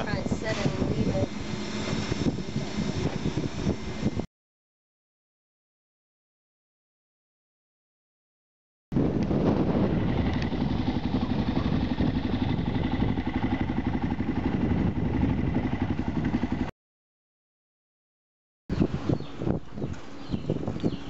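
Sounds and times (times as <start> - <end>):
motorcycle engine running: 9.0 - 16.7.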